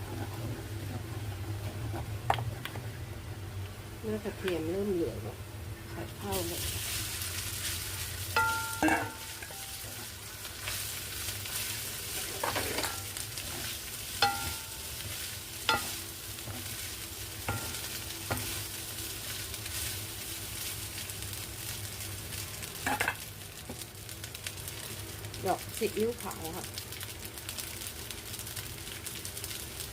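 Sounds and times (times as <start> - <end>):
rice sizzling in a pan: 0.0 - 29.9
metal spatula scraping and clinking: 8.4 - 10.0, 12.2 - 14.8, 15.7 - 16.0, 17.5 - 18.5.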